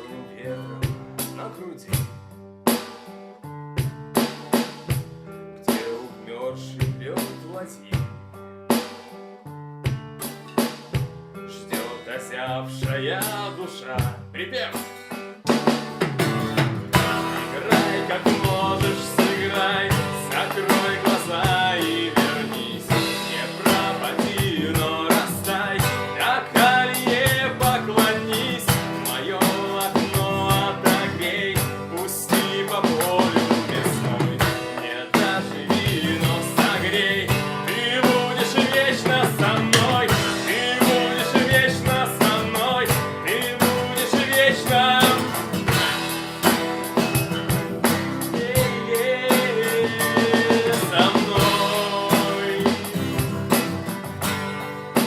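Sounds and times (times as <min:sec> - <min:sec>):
drum rimshots: 0:00.8 - 0:03.2, 0:03.8 - 0:06.0, 0:06.8 - 0:09.2, 0:09.9 - 0:12.1, 0:14.8 - 0:55.0
band music: 0:14.9 - 0:55.0.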